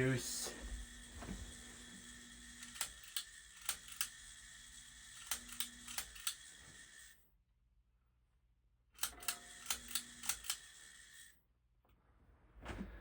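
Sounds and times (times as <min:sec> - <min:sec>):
ceiling fan motor hum: 0:00.0 - 0:07.0.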